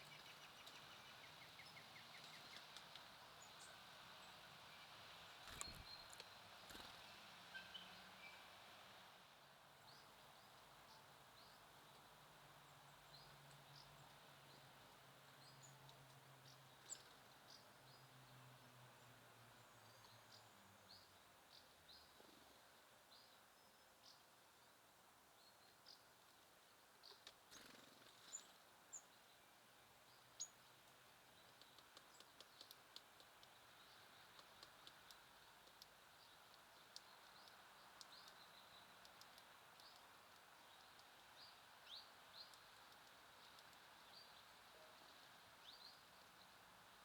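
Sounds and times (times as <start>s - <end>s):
small songbirds chirping: 0.0s - 8.9s, 9.5s - 47.0s
small clicks: 5.4s - 6.9s, 39.0s - 41.1s.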